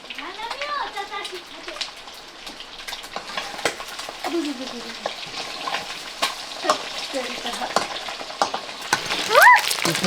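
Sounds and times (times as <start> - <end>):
food sizzling in hot oil: 0.0 - 10.0
stirring in a pan: 3.1 - 10.0.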